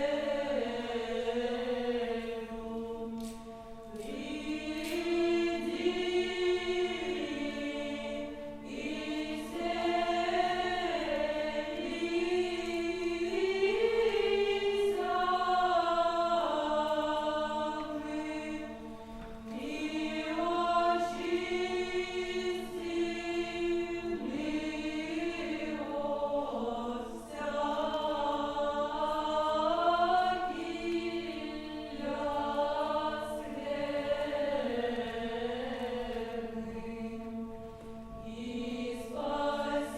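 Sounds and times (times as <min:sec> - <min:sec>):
choir chanting: 0:00.0 - 0:39.9.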